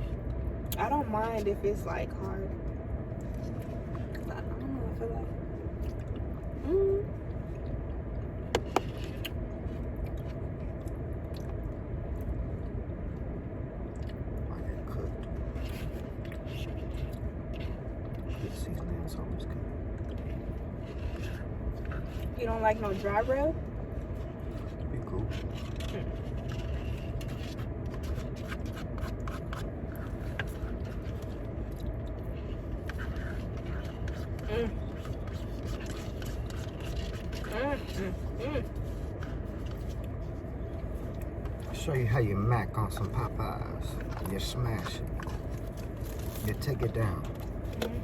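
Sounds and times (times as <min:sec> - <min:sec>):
steady low rumble: 0:00.0 - 0:48.0
person chewing food: 0:05.6 - 0:22.4, 0:23.8 - 0:41.7, 0:43.9 - 0:48.0
chicken crunching and clicks: 0:24.0 - 0:38.1, 0:43.0 - 0:47.8.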